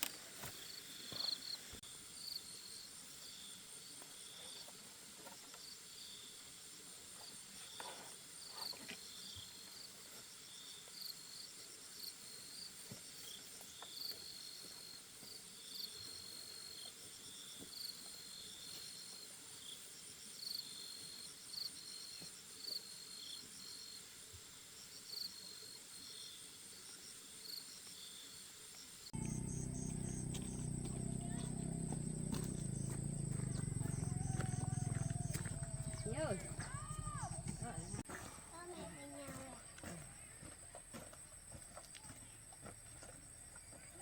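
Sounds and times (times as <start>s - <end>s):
insects chirring: 29.2s - 38.0s.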